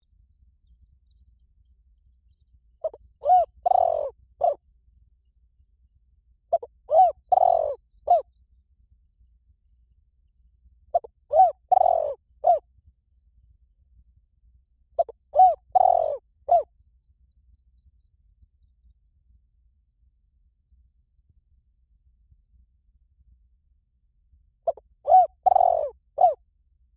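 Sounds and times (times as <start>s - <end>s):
dove cooing: 2.8s - 4.6s, 6.5s - 8.2s, 11.0s - 12.6s, 15.0s - 16.6s, 24.7s - 26.4s.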